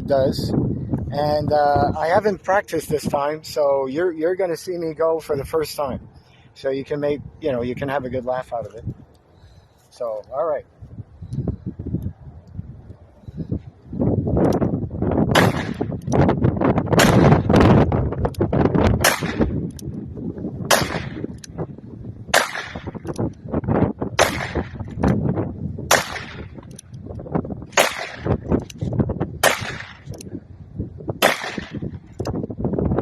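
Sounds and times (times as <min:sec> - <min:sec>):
wind buffeting microphone: 0:00.0 - 0:33.0
revolver gunshots: 0:15.3 - 0:15.9, 0:17.0 - 0:17.5, 0:19.0 - 0:19.6, 0:20.7 - 0:21.3, 0:22.3 - 0:23.1, 0:24.2 - 0:24.8, 0:25.9 - 0:26.6, 0:27.7 - 0:28.5, 0:29.4 - 0:30.1, 0:31.2 - 0:31.9.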